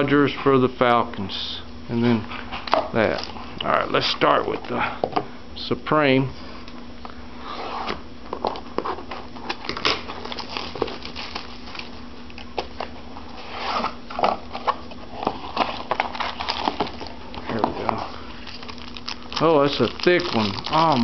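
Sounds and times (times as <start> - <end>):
faint steady hum: 0.0 - 21.0
plastic and foil wrapping crinkling: 9.4 - 12.0, 14.8 - 21.0.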